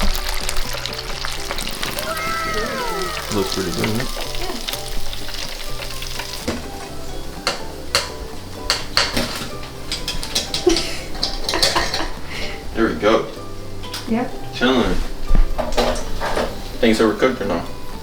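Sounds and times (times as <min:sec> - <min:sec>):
chicken wings sizzling in oil: 0:00.0 - 0:12.4.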